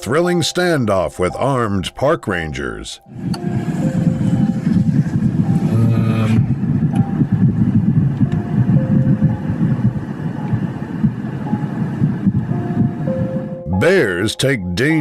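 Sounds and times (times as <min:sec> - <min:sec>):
low engine rumble in traffic: 0:03.1 - 0:13.6.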